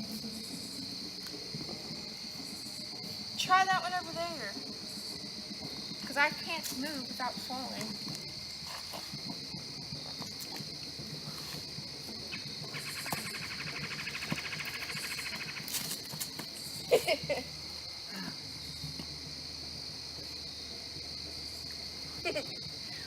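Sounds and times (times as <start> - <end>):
crickets chirping: 0.0 - 23.0
insect pulsing trill: 0.0 - 23.0.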